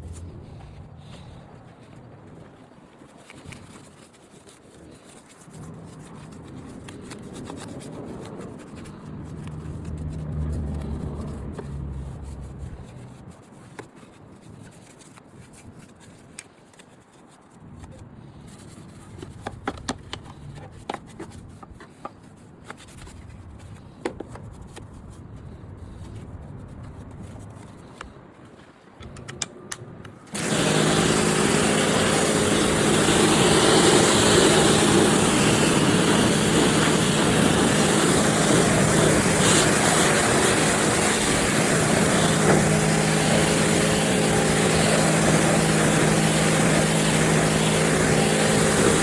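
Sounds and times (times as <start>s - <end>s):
rubbing and scraping: 0.0s - 1.2s, 2.9s - 28.9s.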